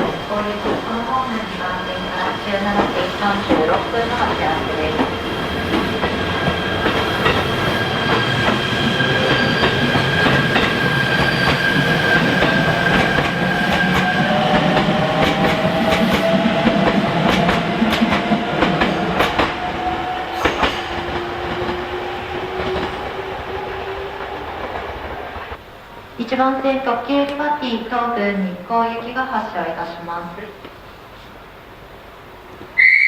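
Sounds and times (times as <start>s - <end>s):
train wheels clicking on rail joints: 0.0s - 25.6s.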